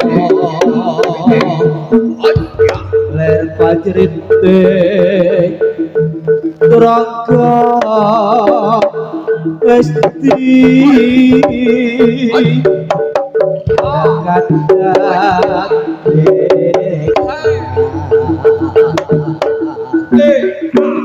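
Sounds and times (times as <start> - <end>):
hand drum strokes: 0.0 - 9.0, 9.9 - 21.0
gamelan music: 0.0 - 21.0
gong chime notes: 2.3 - 6.0.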